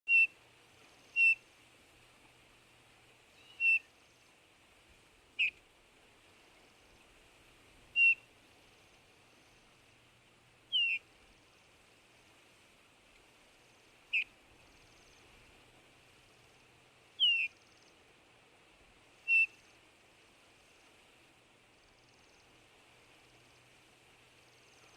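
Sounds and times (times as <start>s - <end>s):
bird piping whistle call: 0.1s - 0.4s, 1.0s - 1.5s, 3.3s - 4.0s, 5.4s - 5.6s, 7.9s - 8.3s, 10.7s - 11.0s, 14.1s - 14.9s, 17.2s - 17.6s, 19.2s - 19.7s.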